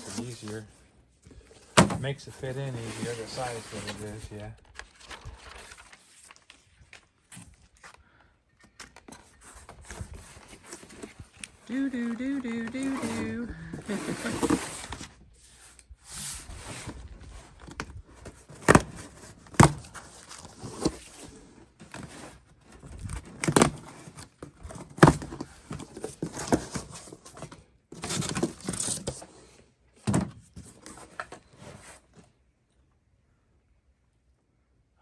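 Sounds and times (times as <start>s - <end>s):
rustling: 0.0s - 8.0s.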